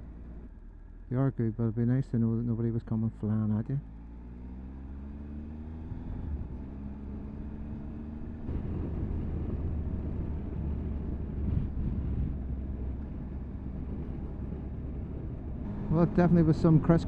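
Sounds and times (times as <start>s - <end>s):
road and wind noise: 0.0s - 17.0s
motorcycle engine running: 4.9s - 17.0s.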